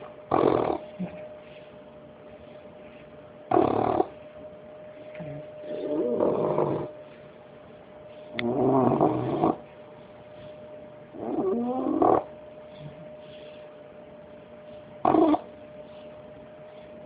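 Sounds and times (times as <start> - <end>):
puppy snoring: 0.0 - 1.2, 3.5 - 4.2, 5.6 - 7.0, 8.3 - 9.7, 11.1 - 13.1, 15.0 - 15.5.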